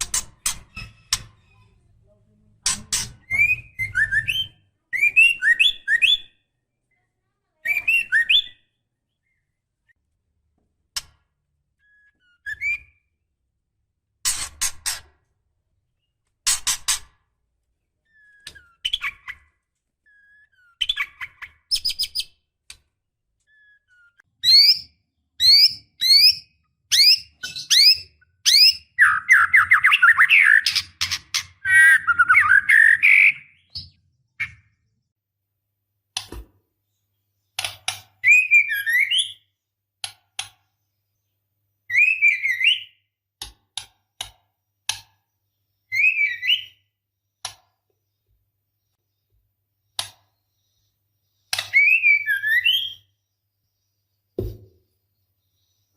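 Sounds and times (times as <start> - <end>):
bird whistled calls: 51.7 - 53.1.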